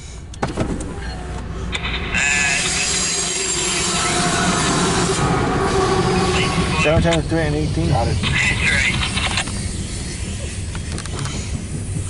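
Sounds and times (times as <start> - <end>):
train wheels rolling on rail: 0.0 - 12.0.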